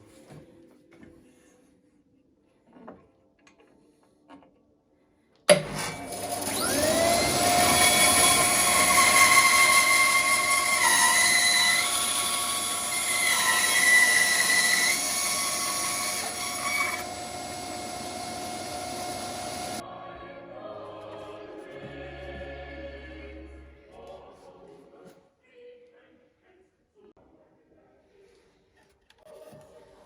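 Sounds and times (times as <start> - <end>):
power saw cutting wood: 5.5 - 19.8.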